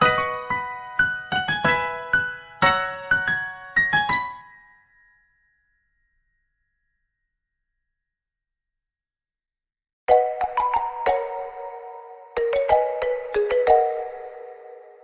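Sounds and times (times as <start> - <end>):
piano notes: 0.0 - 4.6, 10.1 - 15.0.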